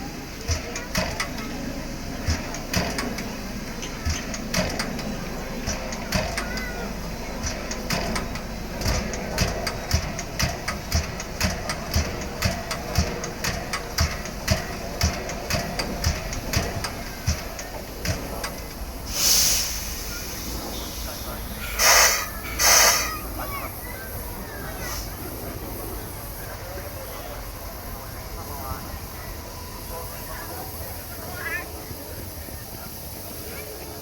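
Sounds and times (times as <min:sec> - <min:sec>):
steam hissing: 0:00.0 - 0:34.0
steam locomotive rumble: 0:00.0 - 0:34.0
sharp metallic knocks: 0:02.2 - 0:18.7.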